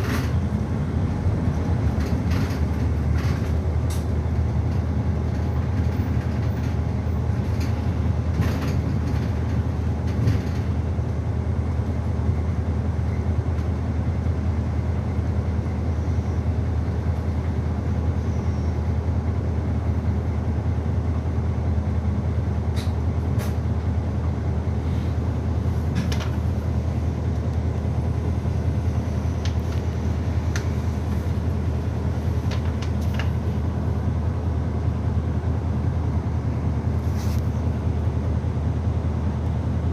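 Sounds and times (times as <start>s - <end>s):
bus engine drone: 0.0s - 39.9s
road noise: 0.0s - 39.9s
bodywork clicks and rattles: 1.8s - 10.8s, 32.4s - 33.4s.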